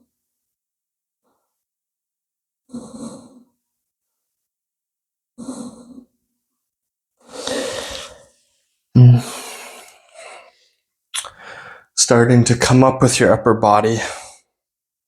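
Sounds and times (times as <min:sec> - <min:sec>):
person breathing close to microphone: 0:07.2 - 0:12.0.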